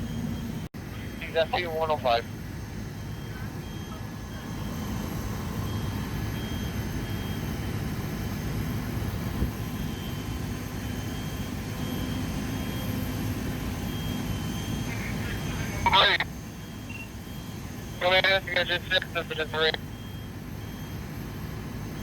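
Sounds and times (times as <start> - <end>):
diesel engine rumbling: 0.0 - 22.0.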